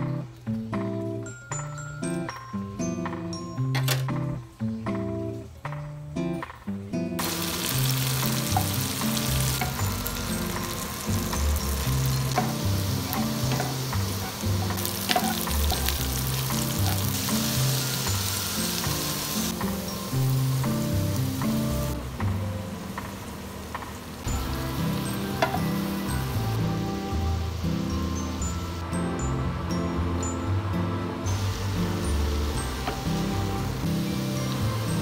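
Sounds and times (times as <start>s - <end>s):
soft music: 0.0s - 23.6s, 24.2s - 35.0s
food sizzling in oil: 7.2s - 22.0s, 24.3s - 28.8s, 31.2s - 35.0s
spatula scraping a pan: 11.8s - 18.0s.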